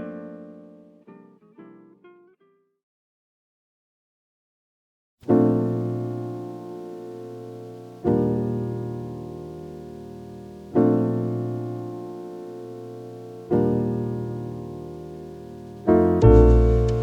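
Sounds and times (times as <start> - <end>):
soft piano chords: 5.3 - 17.0.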